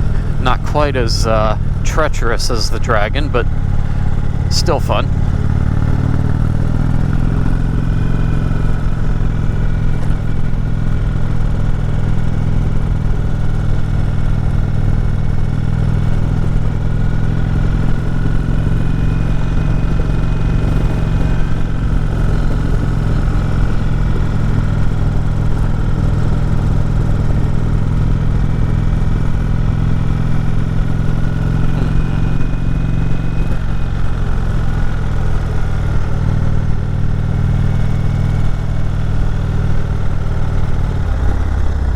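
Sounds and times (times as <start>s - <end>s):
motorcycle engine under load: 0.0s - 41.9s.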